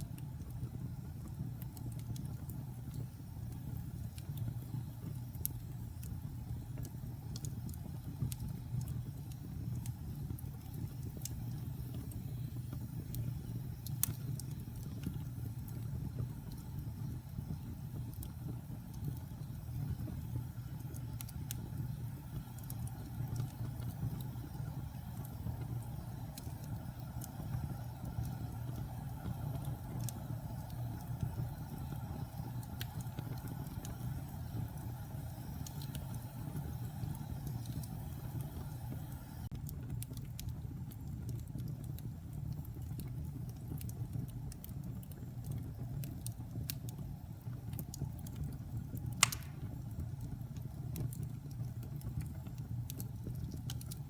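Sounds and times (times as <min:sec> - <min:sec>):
fire crackles: 0:00.0 - 0:54.0
fireplace fire rumbling: 0:00.0 - 0:54.0
sharp loud fire pop: 0:49.2 - 0:49.6.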